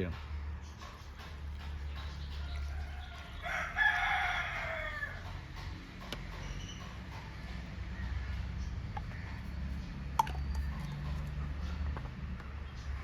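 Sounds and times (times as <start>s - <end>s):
rooster crowing: 2.0s - 5.8s, 7.7s - 9.4s.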